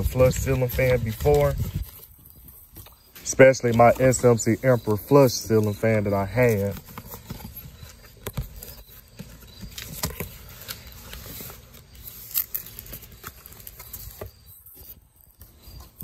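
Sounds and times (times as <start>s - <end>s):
paper and cardboard rustling: 0.0s - 16.0s.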